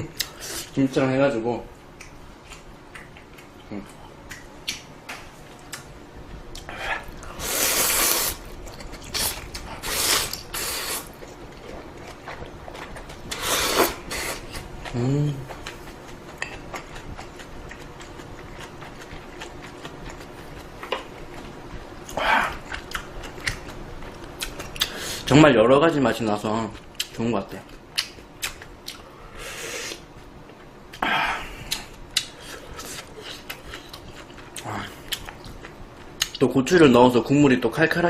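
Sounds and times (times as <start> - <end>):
wet chewing: 6.5 - 25.0, 31.7 - 36.4
person slurping noodles: 7.4 - 8.4, 9.2 - 11.1, 13.3 - 14.5
person humming approval: 14.9 - 15.5.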